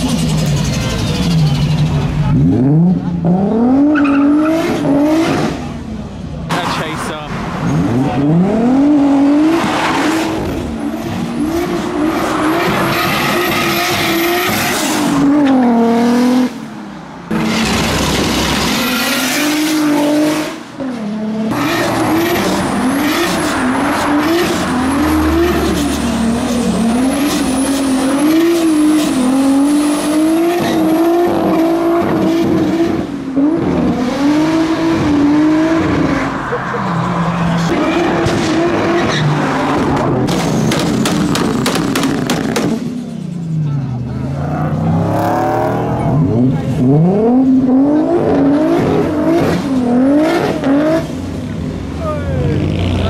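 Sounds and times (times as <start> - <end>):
car engine revving hard: 0.0 - 5.8, 7.6 - 16.7, 17.3 - 36.4, 44.4 - 51.8.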